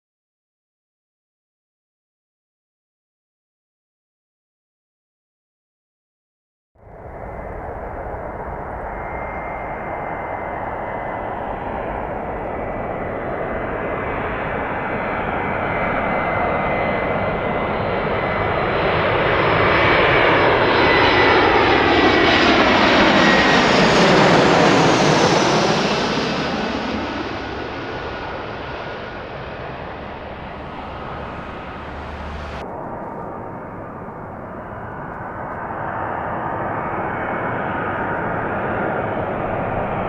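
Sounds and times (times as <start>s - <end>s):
jet engines roaring: 6.8s - 40.0s.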